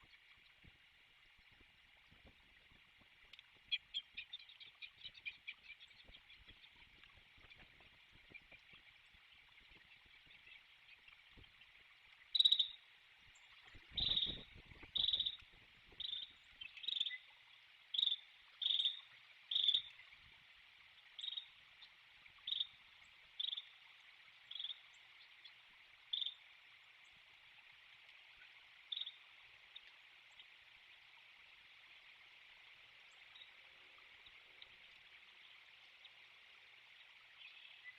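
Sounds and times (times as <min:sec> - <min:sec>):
insect chorus humming: 0:12.3 - 0:12.8, 0:13.8 - 0:15.4.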